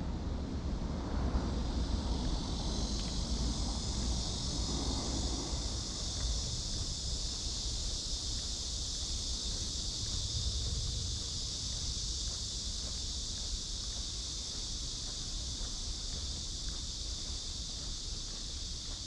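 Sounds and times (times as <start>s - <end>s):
cicadas singing: 0.0s - 19.0s
low rumble: 9.2s - 13.0s.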